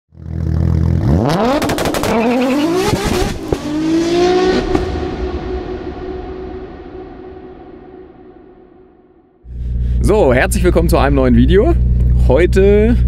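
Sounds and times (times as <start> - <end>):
car engine revving hard: 0.3 - 5.5
sharp cracks: 1.6 - 3.7.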